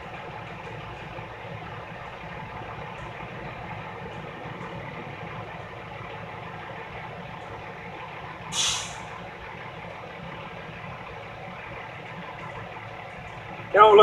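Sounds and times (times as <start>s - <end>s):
truck diesel engine idling: 0.0s - 14.0s
air brake hiss: 8.5s - 9.2s.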